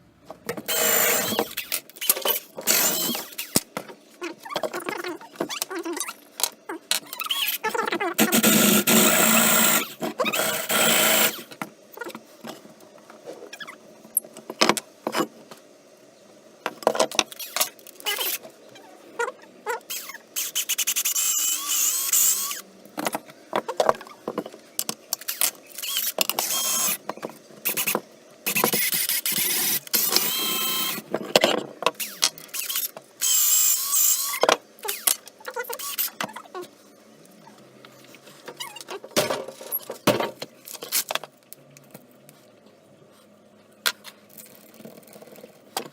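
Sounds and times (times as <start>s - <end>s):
power tool bursts with squeal: 0.7s - 3.6s, 19.9s - 22.6s, 25.8s - 27.0s, 27.7s - 31.0s, 32.0s - 35.1s.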